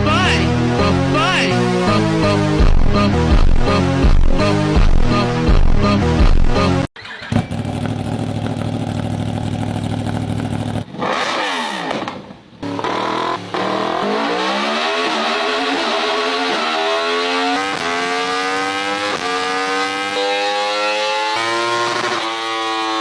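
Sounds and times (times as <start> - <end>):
motorcycle engine accelerating: 7.0 - 23.0.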